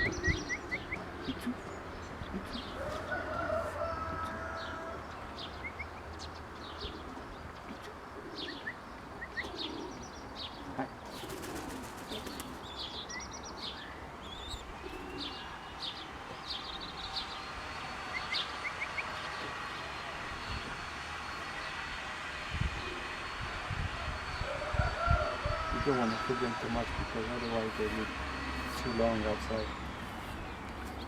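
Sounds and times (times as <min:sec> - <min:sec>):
pigeons cooing: 0:00.0 - 0:05.9, 0:06.6 - 0:13.1, 0:13.7 - 0:31.0
birds chirping: 0:00.0 - 0:31.0
wings fluttering: 0:11.0 - 0:12.8.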